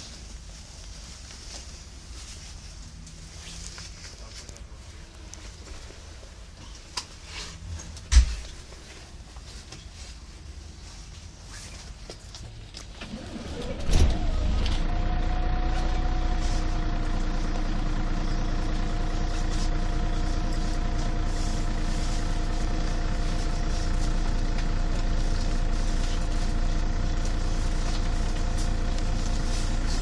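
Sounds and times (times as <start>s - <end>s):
bus diesel engine idling: 0.0s - 30.0s.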